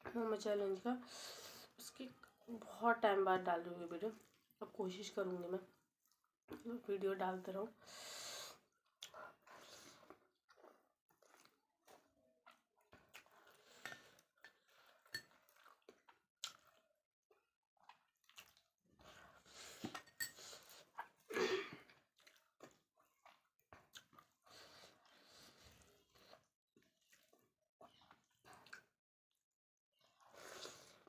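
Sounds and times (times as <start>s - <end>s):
person chewing food: 5.7s - 6.7s, 8.4s - 29.4s, 30.0s - 31.0s.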